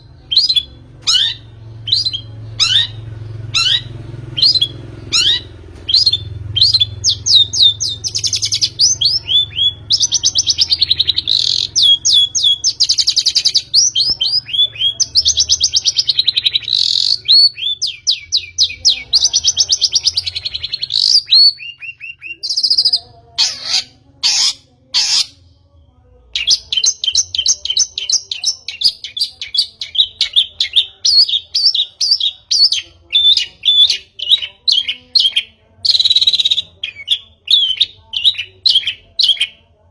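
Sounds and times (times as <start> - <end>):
harsh rasping bird calls: 0.0 - 25.4
bird chattering song: 0.0 - 25.5, 26.4 - 39.7.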